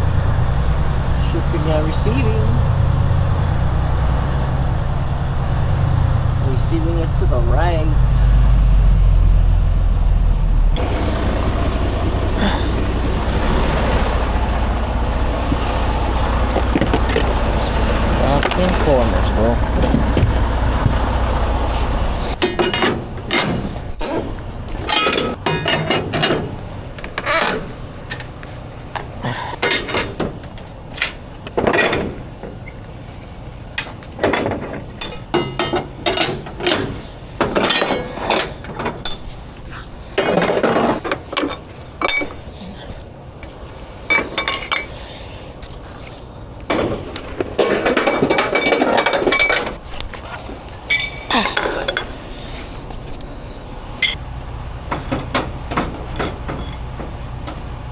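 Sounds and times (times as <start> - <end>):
engine rumble: 0.0 - 57.9
metallic clinks and knocks: 22.4 - 26.6, 33.8 - 39.5, 40.2 - 42.6, 46.7 - 49.8, 50.8 - 52.2.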